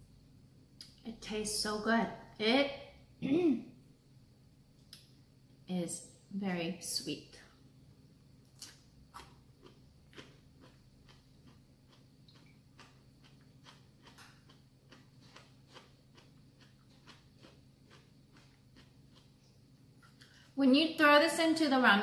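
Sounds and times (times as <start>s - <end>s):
low steady hum: 0.0s - 22.0s
chewing clicks: 8.5s - 19.4s.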